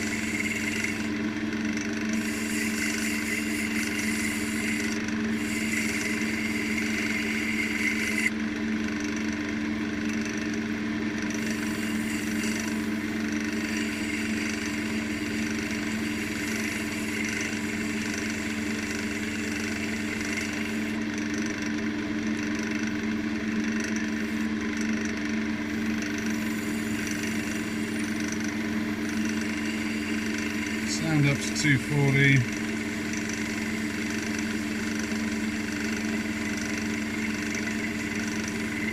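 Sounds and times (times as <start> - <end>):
wood lathe motor humming: 0.0 - 38.9
hiss of spinning wood: 11.4 - 12.9, 26.2 - 38.9.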